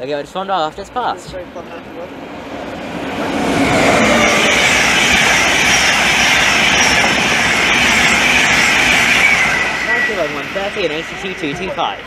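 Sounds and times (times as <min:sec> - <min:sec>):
electric train passing: 0:00.0 - 0:12.0.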